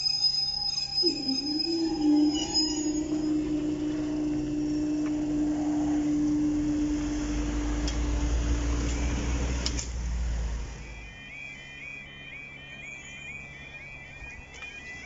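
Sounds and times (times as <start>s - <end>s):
train wheel squeal: 0.0s - 9.9s
low train rumble: 0.0s - 15.0s.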